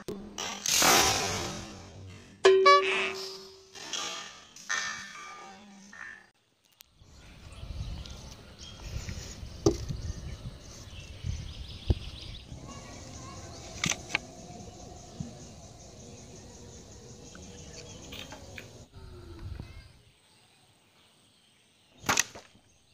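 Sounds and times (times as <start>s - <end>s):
wind buffeting microphone: 7.0s - 18.1s.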